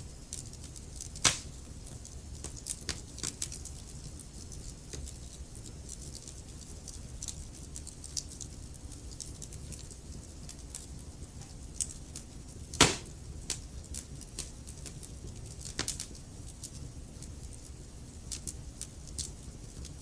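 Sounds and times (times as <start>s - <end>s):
low rumble of fire: 0.0s - 20.0s
loud log pop: 1.2s - 1.5s, 12.8s - 13.1s
logs crackling: 1.2s - 1.6s, 12.8s - 13.1s.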